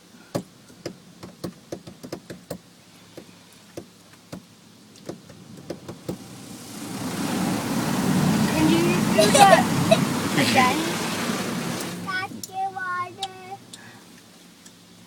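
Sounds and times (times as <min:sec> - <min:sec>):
water spray rushing: 0:05.3 - 0:12.4.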